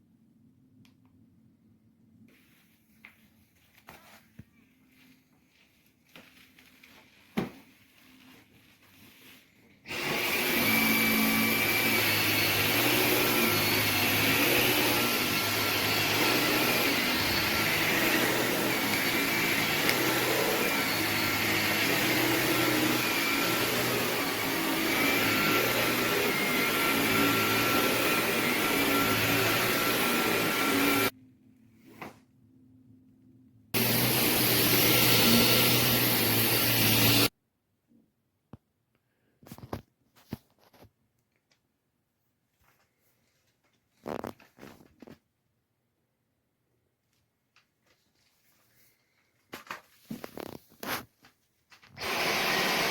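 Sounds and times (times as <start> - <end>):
click: 0.8 - 1.2
vacuum cleaner whining: 9.8 - 31.1, 33.8 - 37.3, 51.8 - 52.9.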